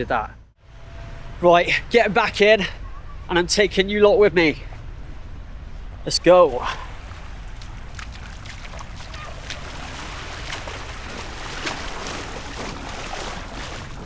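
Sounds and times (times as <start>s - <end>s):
low rumble: 0.3s - 14.0s
sea water sloshing: 4.7s - 14.0s.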